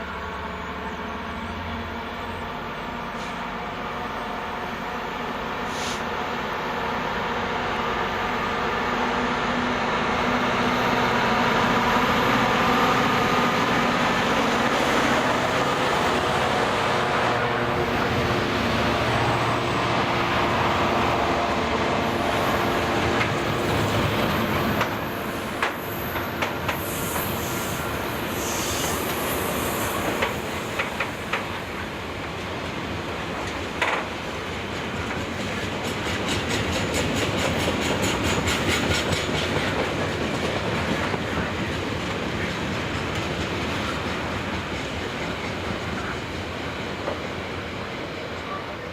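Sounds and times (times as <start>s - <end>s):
freight train rumbling past: 0.0s - 48.9s.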